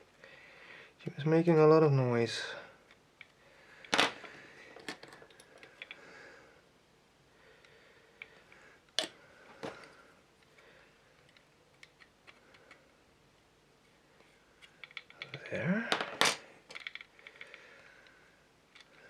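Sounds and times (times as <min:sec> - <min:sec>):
plastic model parts clicking: 0:14.7 - 0:15.5, 0:16.7 - 0:17.6.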